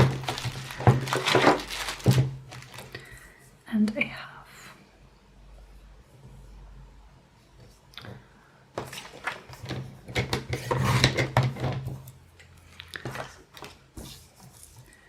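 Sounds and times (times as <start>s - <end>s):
paper rustling and tool taps: 0.0s - 3.0s.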